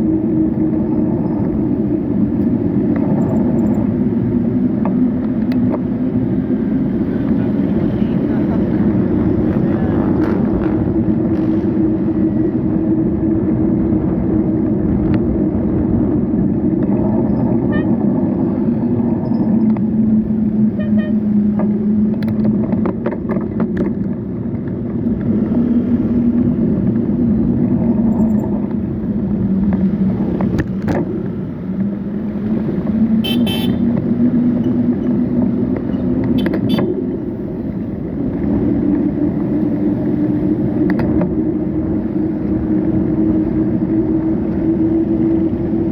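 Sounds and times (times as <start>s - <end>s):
vehicle engines humming: 0.0s - 45.9s
car horn toot: 17.7s - 18.0s, 20.8s - 21.2s, 33.2s - 33.9s, 36.4s - 37.0s.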